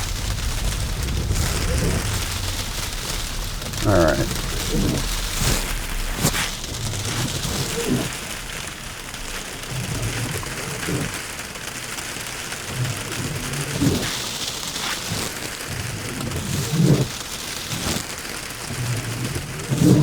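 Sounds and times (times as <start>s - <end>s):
sleet hissing on windshield: 0.0s - 8.2s, 12.7s - 20.0s
windshield wipers sweeping: 0.0s - 20.0s.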